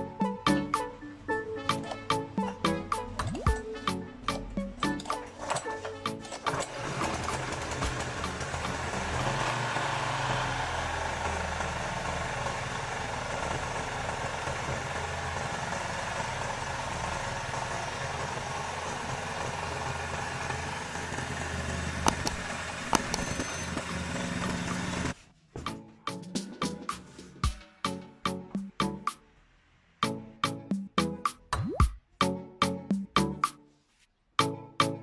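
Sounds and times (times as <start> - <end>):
music with sharp beats: 1.6 - 6.3, 7.2 - 9.4, 22.1 - 23.5, 25.6 - 29.2, 30.0 - 33.6
small engine running: 5.3 - 25.2
sharp clicks: 22.1 - 23.6.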